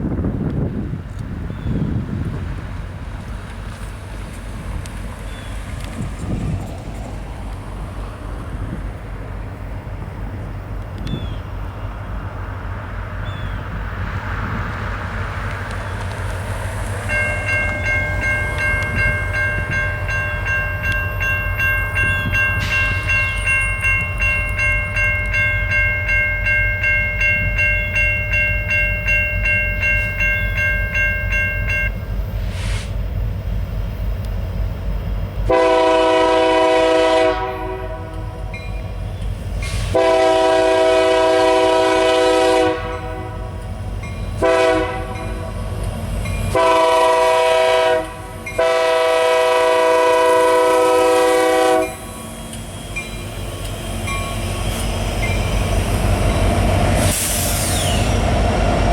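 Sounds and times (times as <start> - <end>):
train rumbling: 0.0 - 58.9
high ringing tone: 17.0 - 32.2
train horn blasts: 35.4 - 38.5, 39.7 - 43.6, 44.4 - 45.6, 46.5 - 52.2.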